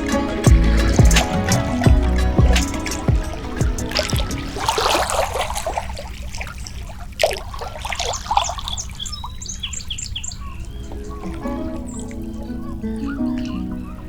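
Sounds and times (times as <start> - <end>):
songbirds chirping: 0.0 - 14.0
trickling water: 0.0 - 14.0.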